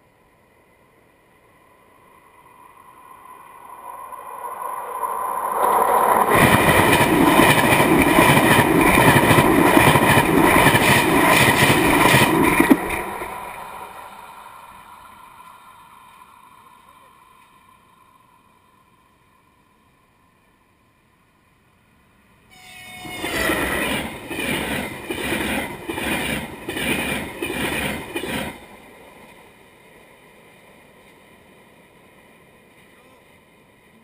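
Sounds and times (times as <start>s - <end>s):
train wheels rushing and clattering: 6.1s - 14.0s, 22.9s - 30.2s.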